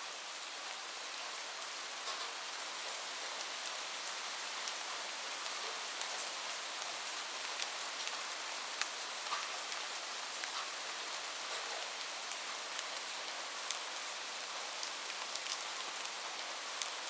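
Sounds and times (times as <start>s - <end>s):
rain on a roof: 0.0s - 17.0s.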